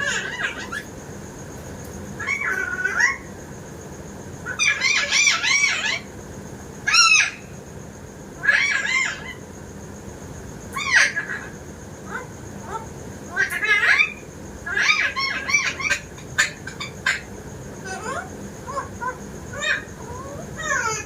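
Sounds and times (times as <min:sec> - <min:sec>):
parrots calling: 0:00.0 - 0:00.9, 0:02.2 - 0:03.4, 0:04.4 - 0:06.1, 0:06.8 - 0:07.6, 0:08.4 - 0:09.4, 0:10.7 - 0:21.0.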